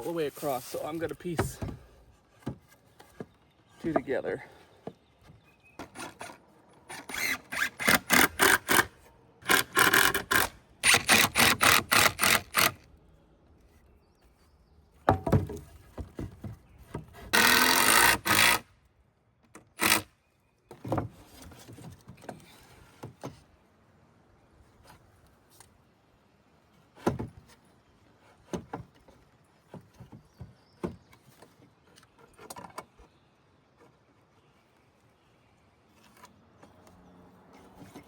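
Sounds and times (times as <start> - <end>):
hand saw cutting wood: 5.8 - 12.8, 17.1 - 18.7, 19.7 - 20.1.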